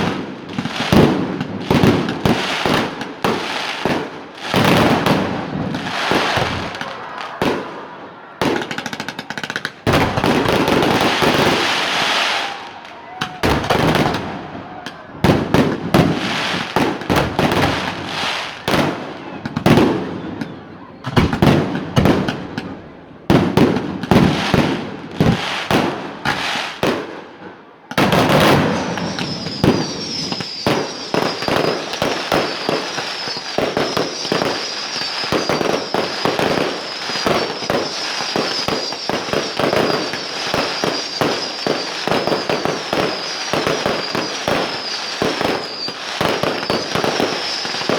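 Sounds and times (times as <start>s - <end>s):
fireworks bangs and crackling: 0.0s - 47.9s
high firework whistle: 4.5s - 18.8s, 28.0s - 47.9s.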